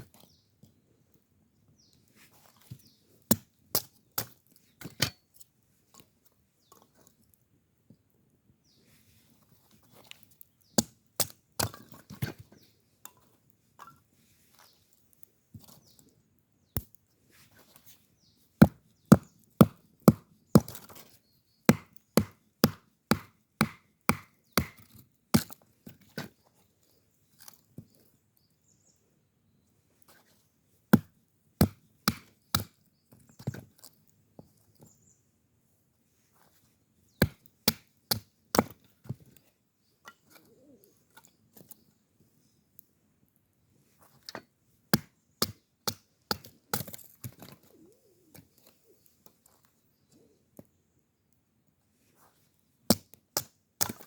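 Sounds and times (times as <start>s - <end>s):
axe chopping firewood: 3.3s - 5.2s, 10.8s - 12.4s, 18.6s - 21.0s, 21.7s - 25.6s, 31.0s - 32.8s, 37.2s - 38.8s, 44.9s - 47.6s, 52.9s - 54.0s.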